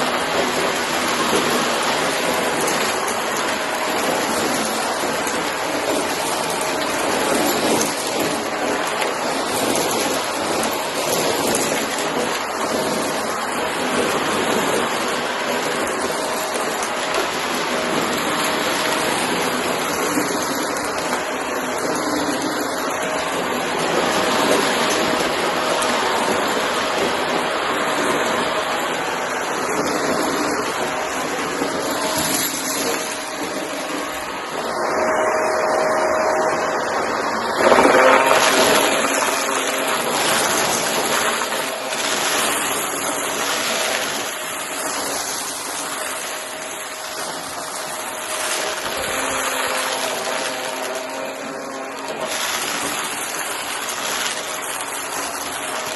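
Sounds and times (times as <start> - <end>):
vacuum cleaner running: 0.0 - 55.9.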